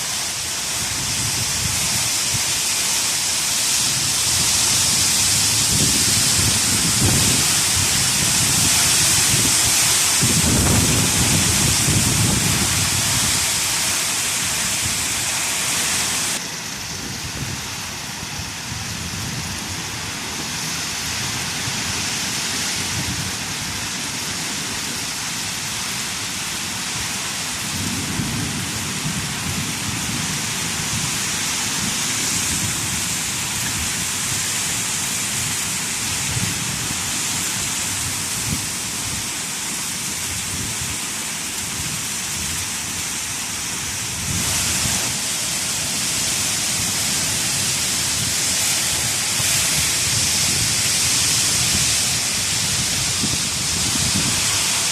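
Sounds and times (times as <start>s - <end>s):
heavy rain and hail: 0.0s - 54.9s
strong wind: 0.0s - 54.9s.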